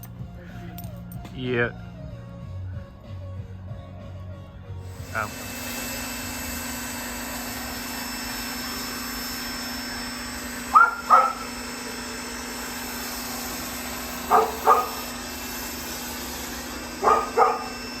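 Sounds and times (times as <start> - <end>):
steady mechanical hum: 4.3 - 18.0
dog barking: 10.7 - 11.5, 14.2 - 15.1, 17.0 - 17.9.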